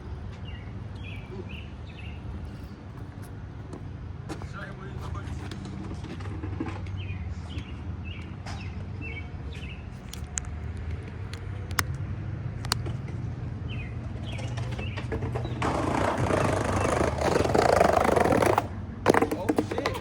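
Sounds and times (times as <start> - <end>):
birds chirping: 0.0 - 10.4, 13.6 - 20.0
skateboard wheels rolling on pavement: 0.0 - 20.0
sharp clicks: 10.0 - 12.0.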